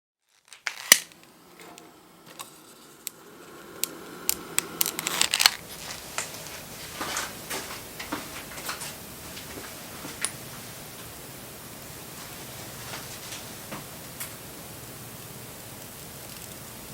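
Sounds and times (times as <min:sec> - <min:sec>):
bonfire crackling and popping: 0:00.3 - 0:11.1.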